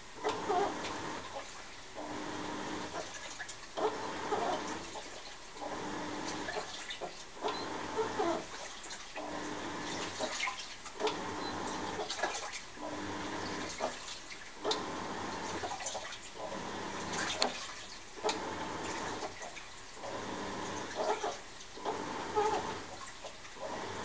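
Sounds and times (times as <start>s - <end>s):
washing machine water sloshing: 0.0s - 24.0s
sharp water splashes: 11.8s - 12.8s.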